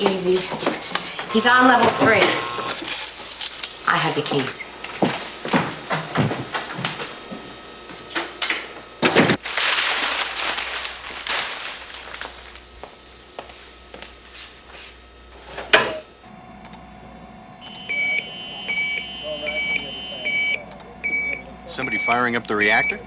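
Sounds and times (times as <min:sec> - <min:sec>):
electronic warning tone beeping: 0:01.1 - 0:02.7, 0:17.6 - 0:23.0
low steady hum: 0:09.2 - 0:23.0.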